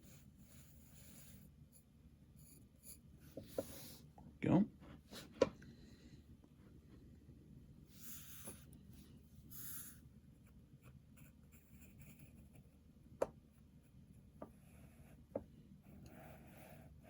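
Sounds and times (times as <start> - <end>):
pencil scratching on paper: 0.0 - 4.0, 7.9 - 8.7, 9.4 - 12.8, 13.5 - 17.0.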